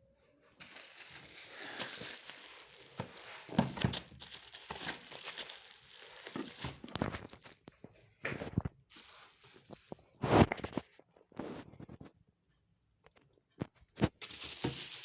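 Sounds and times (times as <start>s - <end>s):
packaging crinkling and rustling: 0.6s - 11.0s, 14.1s - 15.0s.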